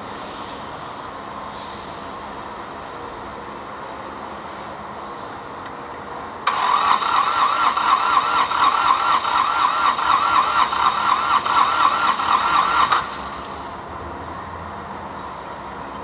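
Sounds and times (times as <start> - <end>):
starter motor cranking diesel engine: 6.4 - 13.8.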